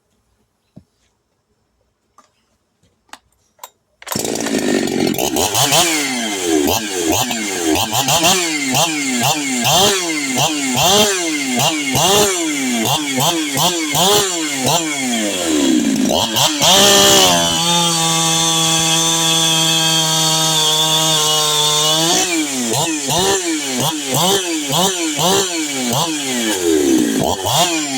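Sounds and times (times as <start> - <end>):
chainsaw cutting wood: 4.0 - 27.9.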